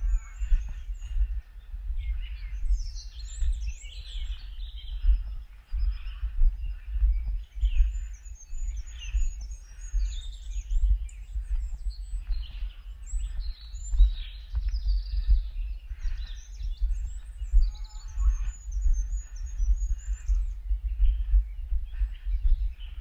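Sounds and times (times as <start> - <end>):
low rumble on microphone: 0.0 - 23.0
songbirds chirping: 0.0 - 23.0.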